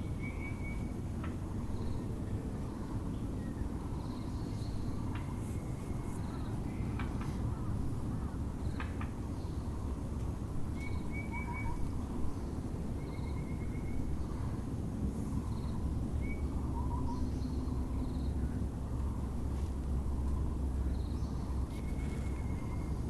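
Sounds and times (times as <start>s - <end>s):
low background rumble: 0.0s - 23.0s
wild birds calling: 10.8s - 19.4s.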